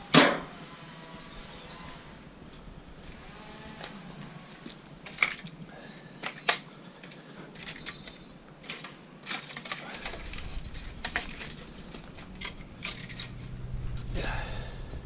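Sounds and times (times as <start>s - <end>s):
scrap metal clanking: 8.7s - 13.6s.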